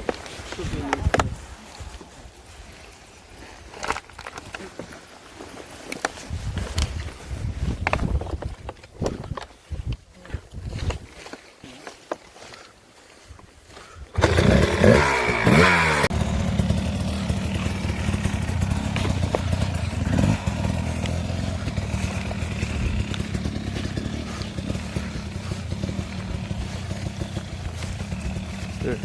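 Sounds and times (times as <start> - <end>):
dirt bike engine revving: 14.2 - 29.0.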